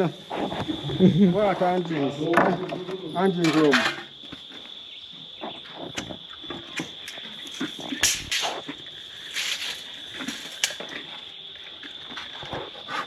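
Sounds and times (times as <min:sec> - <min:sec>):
high-pitched insect drone: 0:00.0 - 0:13.0
construction knocks and scrapes: 0:02.2 - 0:04.5.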